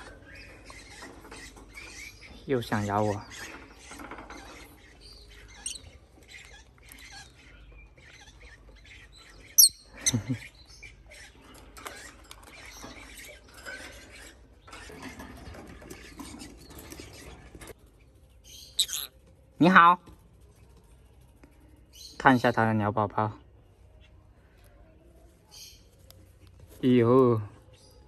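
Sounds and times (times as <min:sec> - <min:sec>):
parrots scratching and shuffling: 0:00.0 - 0:07.5, 0:11.4 - 0:18.1
parrot squeaks and chirps: 0:03.2 - 0:09.9, 0:18.5 - 0:19.2.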